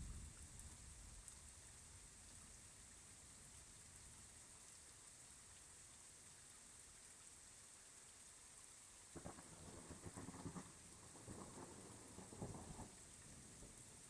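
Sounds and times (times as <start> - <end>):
faint rain hiss: 0.0 - 14.0
rolling thunder: 9.2 - 13.8.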